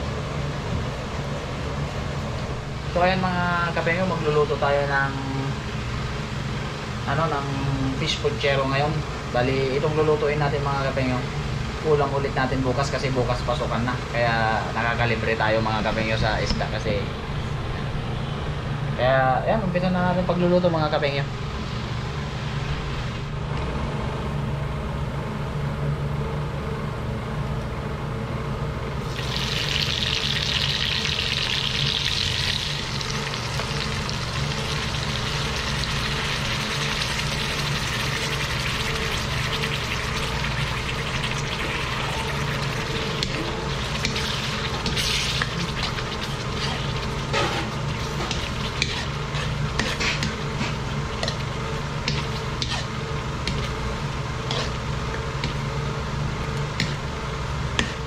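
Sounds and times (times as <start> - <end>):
onions sizzling in oil: 29.0 - 53.6
metal ladle scraping pan: 43.2 - 53.8, 54.4 - 54.8.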